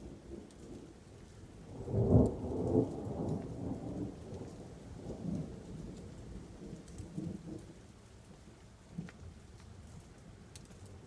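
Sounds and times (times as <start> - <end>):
rain falling: 0.0 - 11.0
thunder crack and rumble: 1.7 - 7.8.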